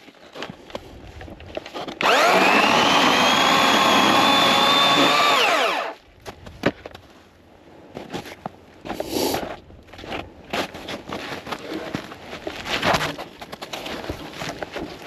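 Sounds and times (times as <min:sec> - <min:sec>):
electric chainsaw whining: 0:02.0 - 0:06.0.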